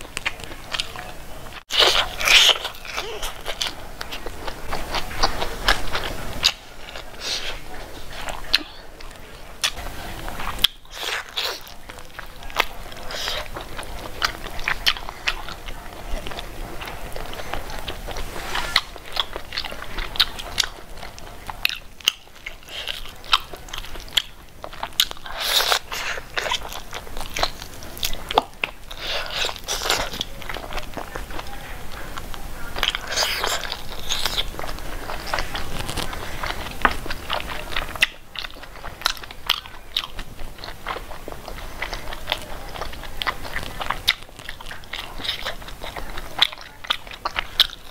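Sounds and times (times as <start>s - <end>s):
wet chewing and crunching: 0.0s - 47.9s.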